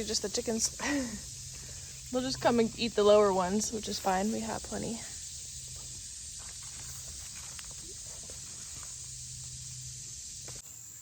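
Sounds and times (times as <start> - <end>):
insect chorus hissing: 0.0 - 11.0
faint clicks and rustles: 3.9 - 9.6.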